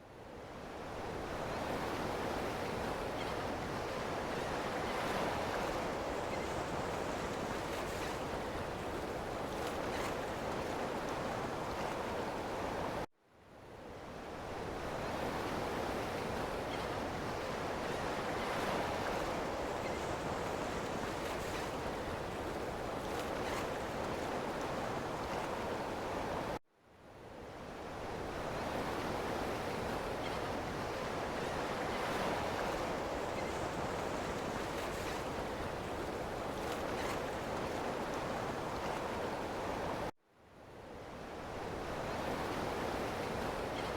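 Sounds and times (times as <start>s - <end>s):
ocean surf washing ashore: 27.9s - 40.1s.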